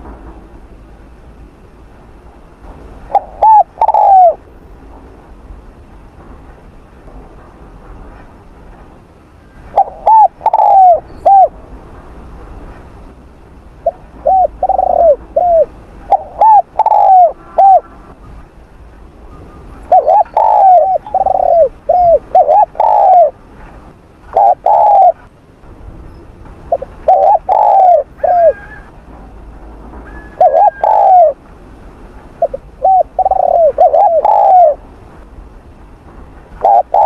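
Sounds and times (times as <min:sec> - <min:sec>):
dove cooing: 0:03.1 - 0:04.4, 0:09.7 - 0:11.5, 0:13.8 - 0:17.9, 0:19.9 - 0:23.4, 0:24.3 - 0:25.3, 0:26.7 - 0:28.9, 0:30.1 - 0:31.4, 0:32.4 - 0:34.8, 0:36.6 - 0:37.0.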